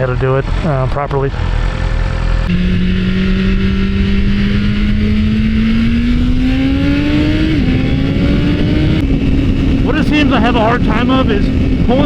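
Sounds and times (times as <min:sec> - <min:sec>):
air rush and road noise: 0:00.0 - 0:12.0
motorcycle engine accelerating: 0:00.0 - 0:12.0.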